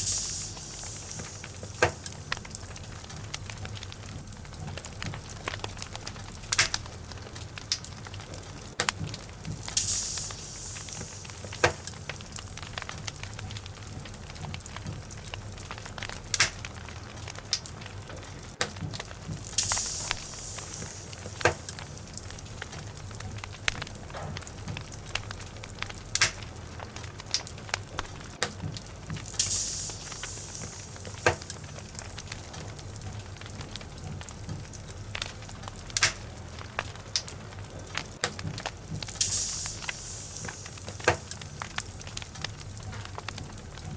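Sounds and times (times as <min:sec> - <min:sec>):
short hiss of fire: 0:00.0 - 0:03.5, 0:09.6 - 0:13.3, 0:19.4 - 0:23.2, 0:29.2 - 0:33.0, 0:39.1 - 0:42.8
low rumble of fire: 0:00.0 - 0:43.9
wood fire crackling and popping: 0:00.0 - 0:43.9.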